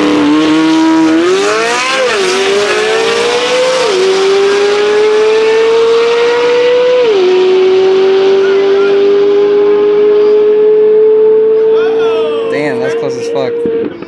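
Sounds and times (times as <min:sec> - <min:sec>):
car engine accelerating at full throttle: 0:00.0 - 0:14.0.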